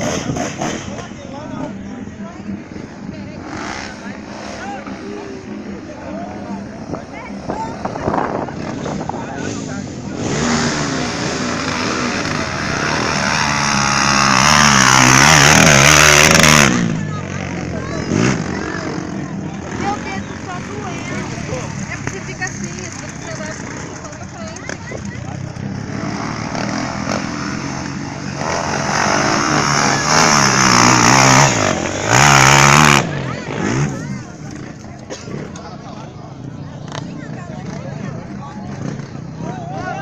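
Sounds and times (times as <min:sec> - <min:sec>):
dirt bike engine revving: 0:03.3 - 0:05.8, 0:08.1 - 0:35.6.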